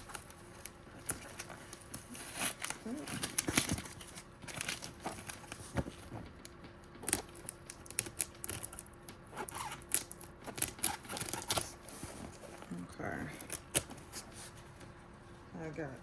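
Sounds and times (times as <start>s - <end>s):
packing tape tearing: 0.0s - 5.9s, 7.0s - 12.7s
cardboard being handled: 0.0s - 7.5s, 10.5s - 14.9s.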